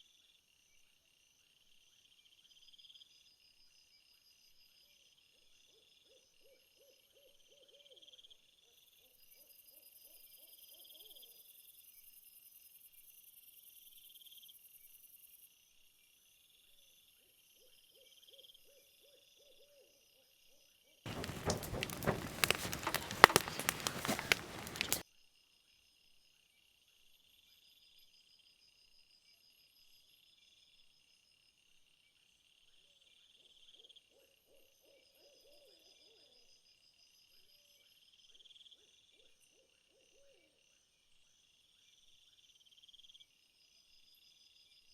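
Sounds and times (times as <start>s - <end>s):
crickets trilling: 21.1s - 25.0s
loud crackling rustle: 21.1s - 25.0s.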